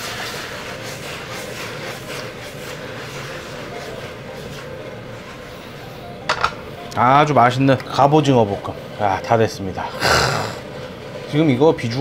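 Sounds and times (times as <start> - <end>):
stir-fry sizzling in a wok: 0.0 - 5.5.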